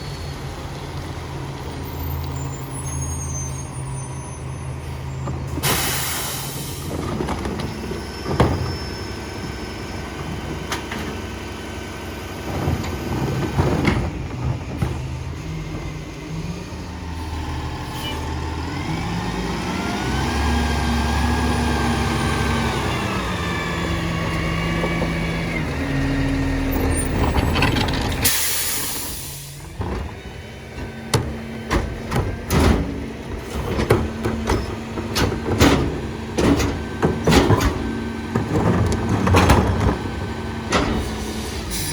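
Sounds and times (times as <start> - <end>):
diesel engine revving: 0.0 - 41.9
air brake hiss: 5.6 - 6.9, 28.3 - 29.6, 41.0 - 41.9
metal clanks and bangs: 26.8 - 41.9.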